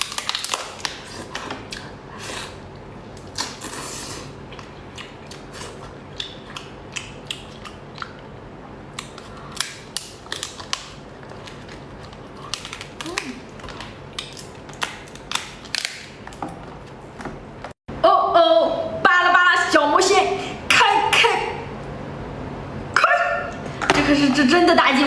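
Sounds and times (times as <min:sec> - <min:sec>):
lobster shell cracking: 0:00.0 - 0:01.9, 0:08.9 - 0:16.4.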